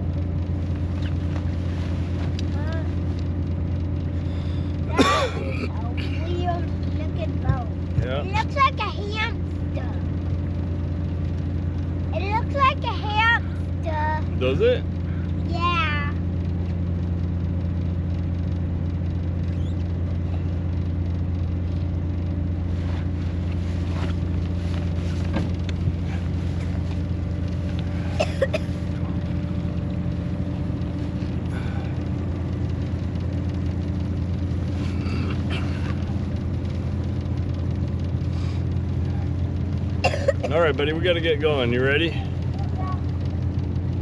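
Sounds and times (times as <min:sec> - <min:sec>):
boat engine idling: 0:00.0 - 0:44.0.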